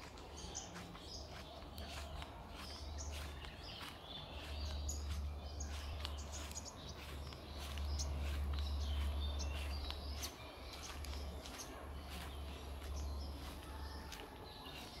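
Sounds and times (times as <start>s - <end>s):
birds chirping: 0.0s - 15.0s
steady low rumble: 0.0s - 15.0s.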